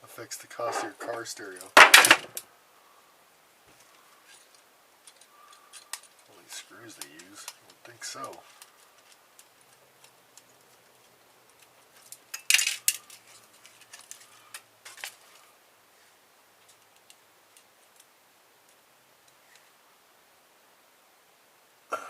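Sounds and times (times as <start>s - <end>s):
metal parts and tools clinking: 0.6s - 2.4s, 8.5s - 15.4s.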